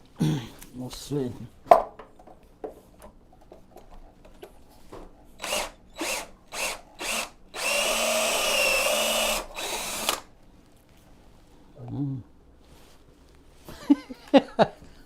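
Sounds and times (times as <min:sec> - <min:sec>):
power drill whining: 0:05.4 - 0:10.3.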